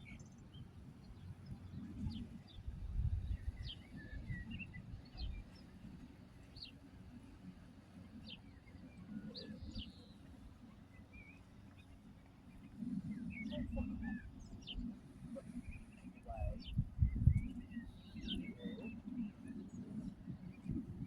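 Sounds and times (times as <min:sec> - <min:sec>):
small birds chirping: 0:00.0 - 0:21.0
low rumbling noise: 0:12.5 - 0:21.0.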